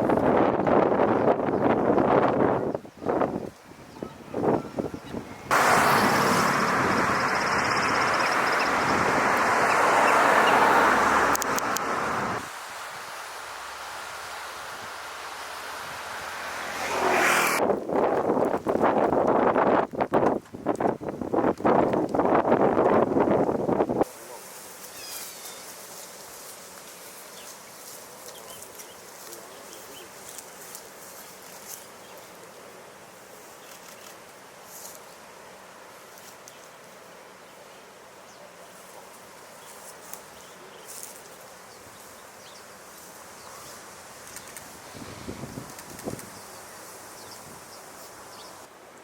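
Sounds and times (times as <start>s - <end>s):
traffic-like outdoor roar: 5.5s - 17.7s
faint hiss: 10.0s - 17.6s, 23.7s - 49.0s
high ticks: 11.2s - 11.9s.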